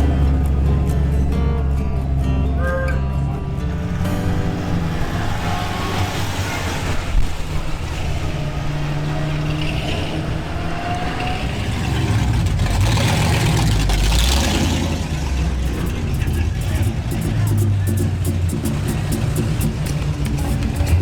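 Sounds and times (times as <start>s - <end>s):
cars driving past revving: 0.0s - 21.0s.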